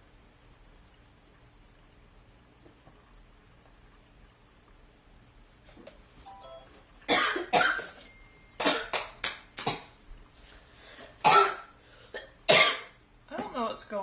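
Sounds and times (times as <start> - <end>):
person coughing hard: 7.1 - 7.9, 8.6 - 9.0, 11.2 - 13.0.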